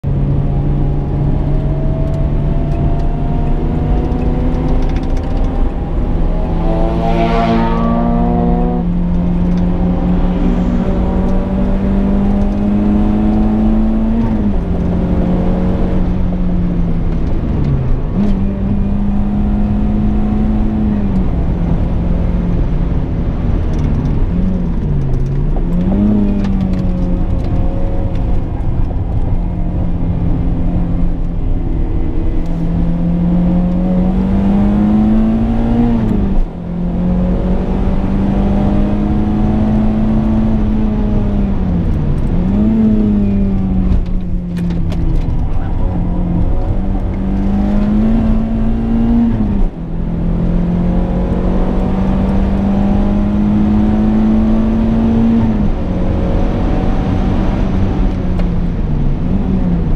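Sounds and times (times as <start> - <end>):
car engine at high revs: 0.0 - 59.9
road noise: 0.0 - 59.9
sweeping rush: 5.5 - 14.1.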